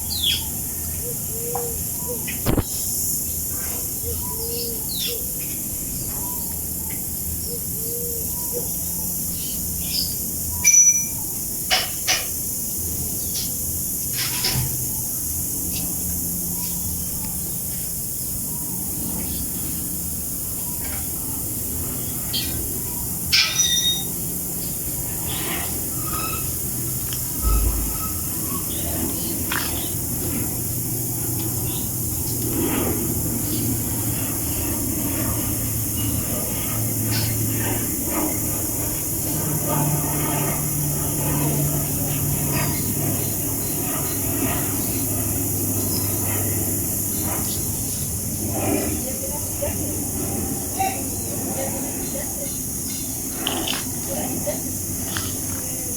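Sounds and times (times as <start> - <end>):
aircraft engine noise: 12.4 - 55.9
steady low hum: 24.2 - 55.9
jet engine rushing hiss: 26.6 - 29.3
low rumble: 27.4 - 28.4.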